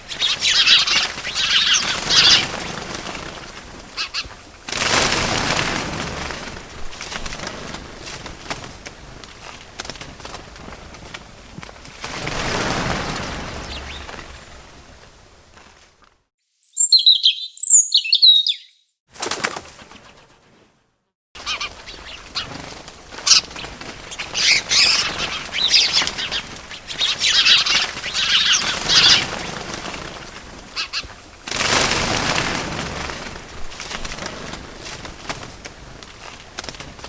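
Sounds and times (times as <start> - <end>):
birds twittering: 0.0 - 4.3, 12.7 - 14.7, 16.5 - 19.0, 21.4 - 30.1, 30.7 - 31.1
small birds chirping: 0.0 - 4.4, 13.0 - 14.6, 16.5 - 19.0, 21.4 - 30.1
fluttering wings: 0.0 - 16.2, 19.1 - 37.0.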